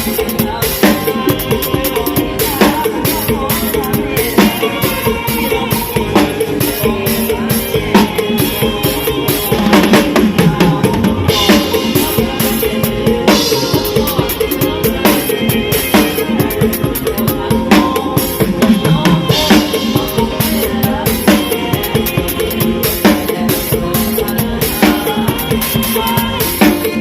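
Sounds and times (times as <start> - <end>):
drum kit playing a driving beat: 0.0 - 27.0
full band playing: 0.0 - 27.0.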